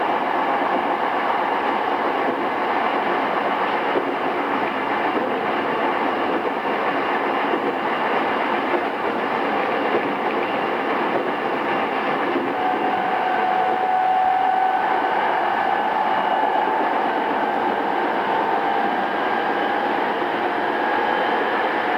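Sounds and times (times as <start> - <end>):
train rolling noise: 0.0 - 21.9
steady whine: 10.3 - 21.9.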